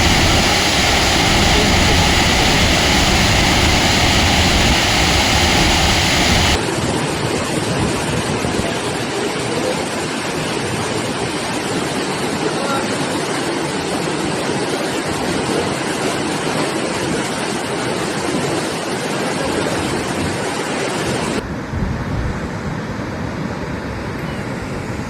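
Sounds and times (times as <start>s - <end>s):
water gushing: 0.0s - 6.6s.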